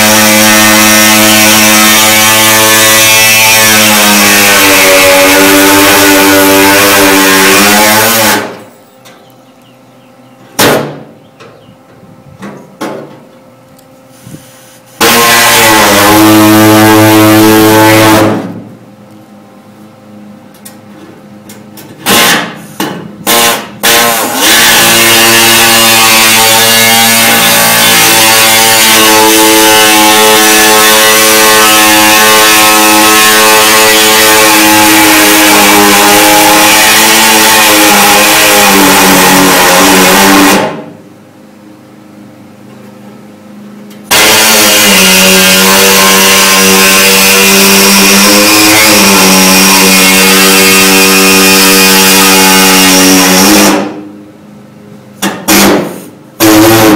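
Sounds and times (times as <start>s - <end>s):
air tool cutting metal: 0.0s - 8.7s, 14.2s - 18.5s, 22.0s - 40.8s, 44.1s - 54.0s, 55.2s - 56.9s.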